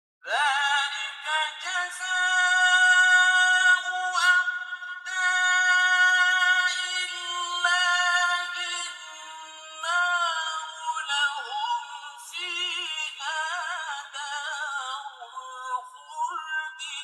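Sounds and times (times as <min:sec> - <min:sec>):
man chanting melodically: 0:00.3 - 0:17.0.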